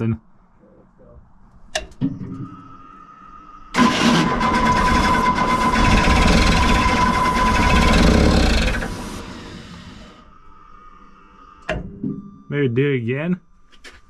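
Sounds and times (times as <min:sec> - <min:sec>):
starter motor whine: 0:03.8 - 0:10.2
diesel engine cranking: 0:03.8 - 0:10.3.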